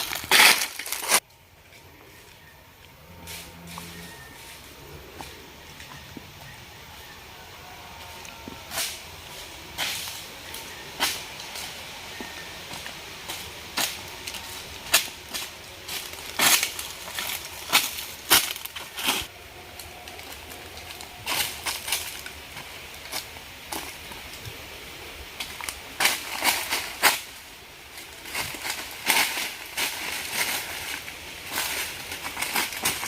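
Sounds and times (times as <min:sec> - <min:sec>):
crunching and crackling: 0:00.0 - 0:01.2, 0:09.7 - 0:24.6, 0:25.3 - 0:33.0.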